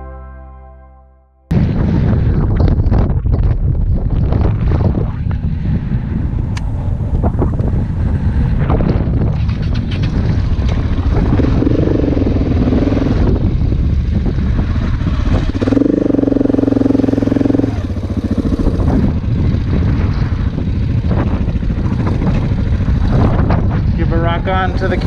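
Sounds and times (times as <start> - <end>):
clatter over rough track: 1.5 - 25.0
motorcycle engine running: 1.5 - 25.0.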